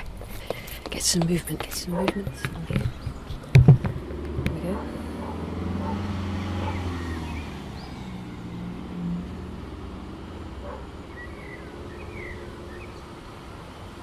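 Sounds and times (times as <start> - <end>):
vehicle engine hum: 0.0 - 14.0
bird chirps: 6.6 - 8.4, 11.0 - 13.2.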